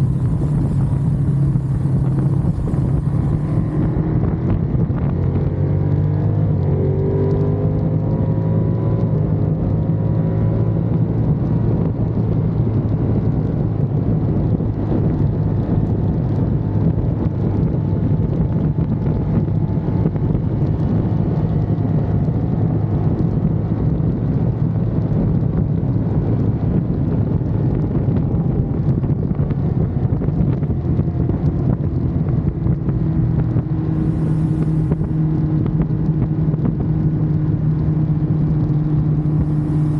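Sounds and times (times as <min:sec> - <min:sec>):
motorcycle engine droning: 0:00.0 - 0:39.9.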